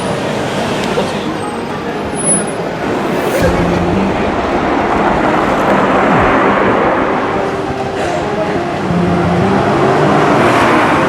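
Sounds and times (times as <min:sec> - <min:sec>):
street traffic noise: 0:00.0 - 0:11.0
vehicle engine passing by: 0:02.2 - 0:07.6.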